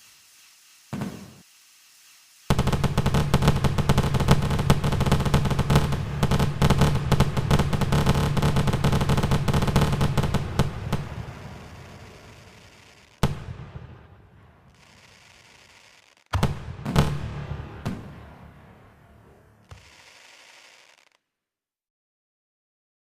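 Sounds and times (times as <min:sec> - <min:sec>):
fireworks bangs and crackles: 0:00.0 - 0:21.2.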